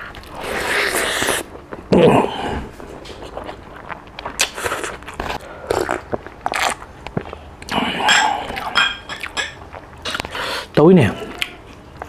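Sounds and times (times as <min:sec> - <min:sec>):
chewing and lip-smacking: 0:03.0 - 0:07.8, 0:08.5 - 0:10.4.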